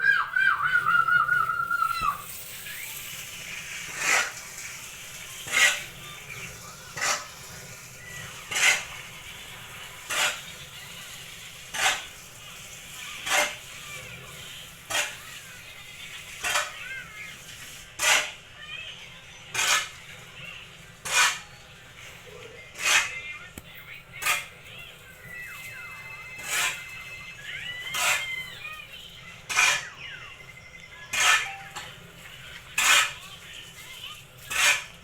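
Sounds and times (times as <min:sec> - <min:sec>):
swishing scrape of sawdust: 0:02.2 - 0:07.7.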